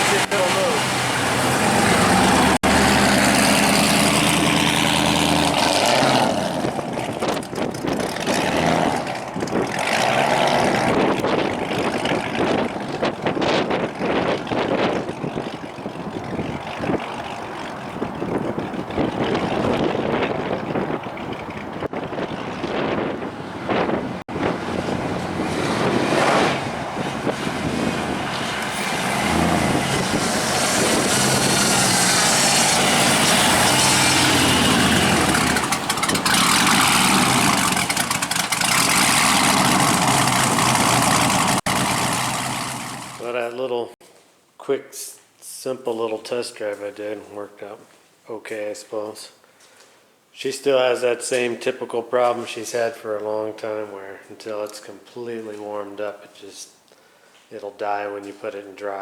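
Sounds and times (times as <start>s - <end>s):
car engine running: 0.0s - 43.2s
wind on microphone: 6.4s - 38.0s.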